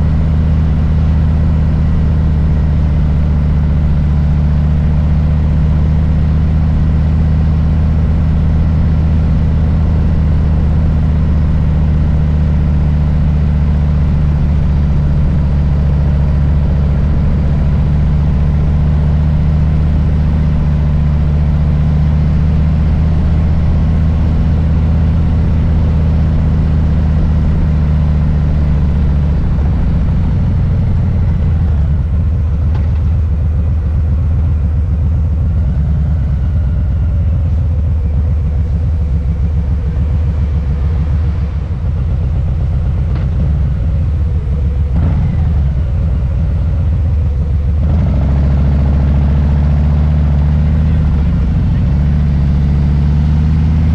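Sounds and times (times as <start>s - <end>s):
motorcycle engine low rumble: 0.0s - 53.9s.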